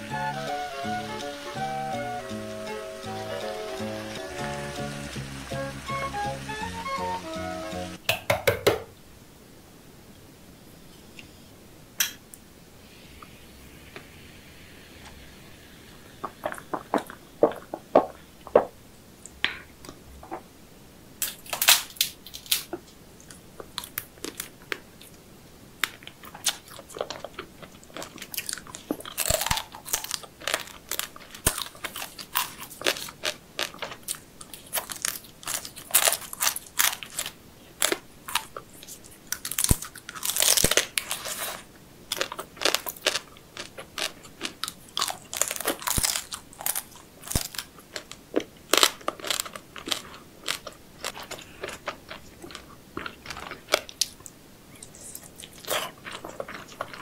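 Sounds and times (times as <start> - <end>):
crunching and chewing seafood: 16.2 - 18.3, 21.2 - 25.2, 25.8 - 57.0.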